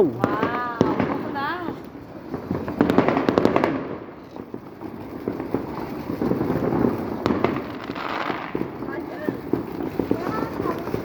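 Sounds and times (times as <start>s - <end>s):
firework cracks and pops: 0.0s - 11.0s
firework hissing crackling rush: 0.0s - 11.0s.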